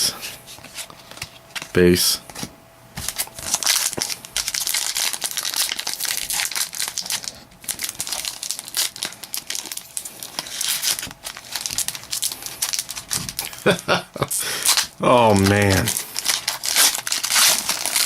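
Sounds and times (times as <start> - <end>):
wrapper crinkling and tearing: 3.0 - 13.8, 14.6 - 18.0.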